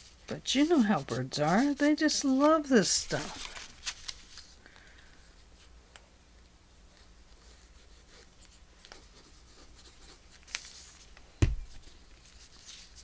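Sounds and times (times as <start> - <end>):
paper rustling and scratching: 0.0 - 4.6, 6.9 - 13.0
dull thump: 11.4 - 11.7.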